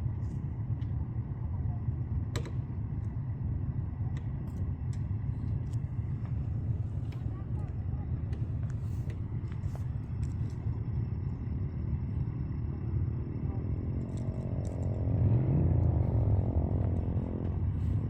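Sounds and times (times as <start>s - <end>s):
vehicle engine rumbling: 0.0s - 18.0s
vehicle approaching: 11.3s - 18.0s.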